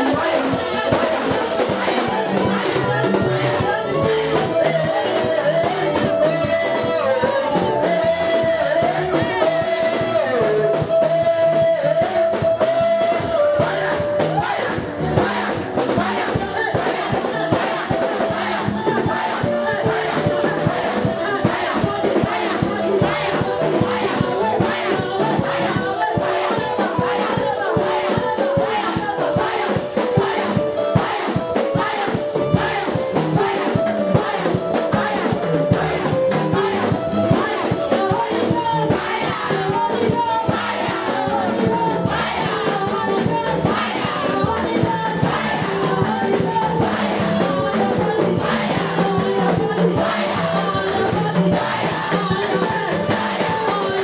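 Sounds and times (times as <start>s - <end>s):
choir singing: 0.0s - 54.0s
fast percussive beat: 0.0s - 54.0s
praise band music: 0.0s - 54.0s.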